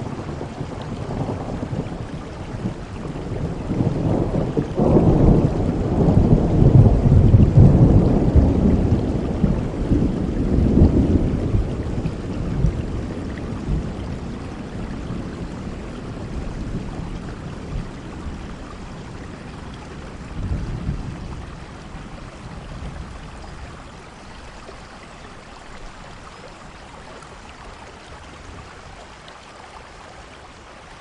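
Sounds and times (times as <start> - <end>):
rolling thunder: 0.0 - 24.1
heavy rain falling: 0.0 - 31.0.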